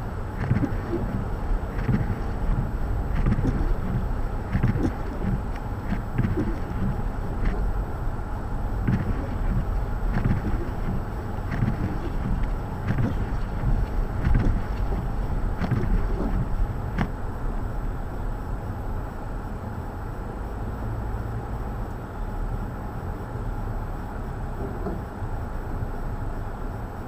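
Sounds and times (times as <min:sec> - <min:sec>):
wind buffeting microphone: 0:00.0 - 0:18.5.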